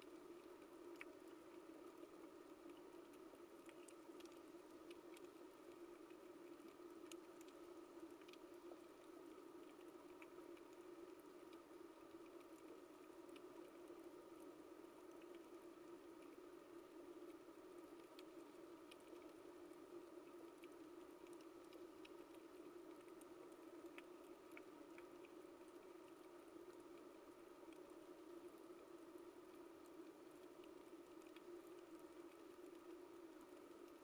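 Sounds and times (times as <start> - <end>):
sharp clicks and crackles: 0.1 - 15.5.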